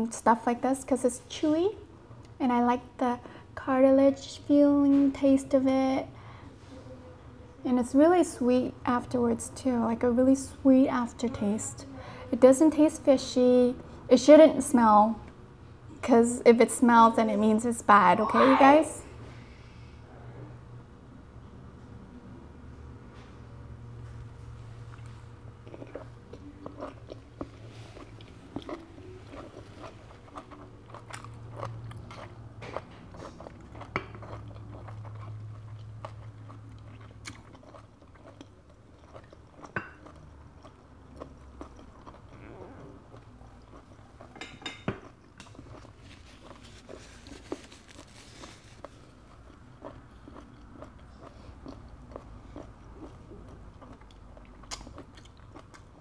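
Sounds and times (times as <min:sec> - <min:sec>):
person chewing: 0:24.8 - 0:56.0.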